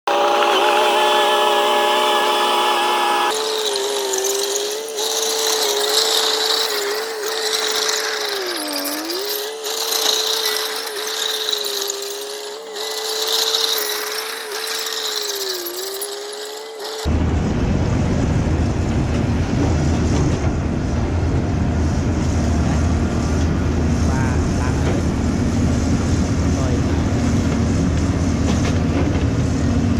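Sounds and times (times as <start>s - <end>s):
motor whining: 0.0s - 17.2s
mechanical noise: 0.0s - 29.9s.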